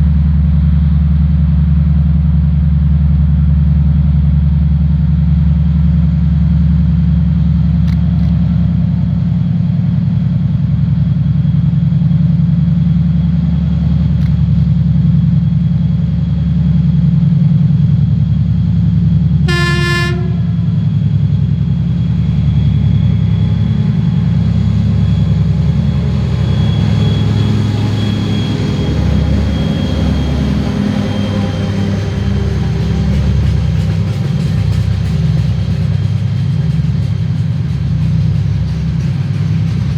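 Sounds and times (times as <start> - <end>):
diesel locomotive engine drone: 0.0 - 39.9
train rolling noise: 0.0 - 39.9
train horn blast: 19.4 - 21.1.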